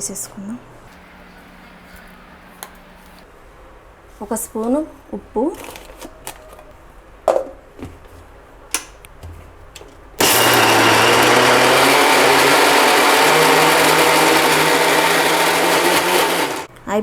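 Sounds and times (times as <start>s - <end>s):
mixer grinder running: 10.2s - 16.7s.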